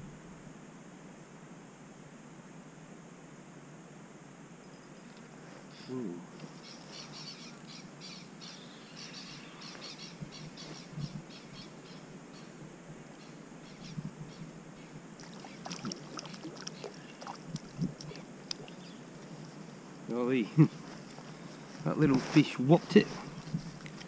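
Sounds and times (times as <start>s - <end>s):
steady outdoor hiss: 0.0s - 24.0s
small bird chirping: 4.7s - 12.6s, 13.2s - 19.1s.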